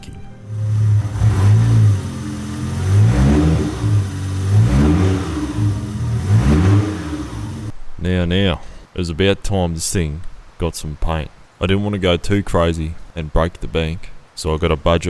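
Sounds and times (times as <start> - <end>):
car engine revving: 0.5 - 7.7.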